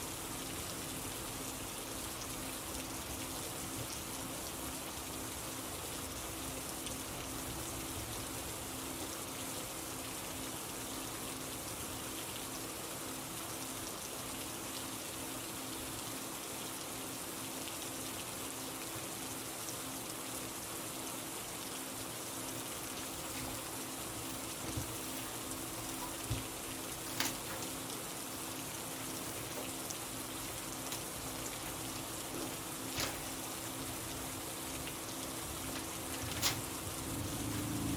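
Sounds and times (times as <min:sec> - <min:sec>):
steady rain patter: 0:00.0 - 0:37.9.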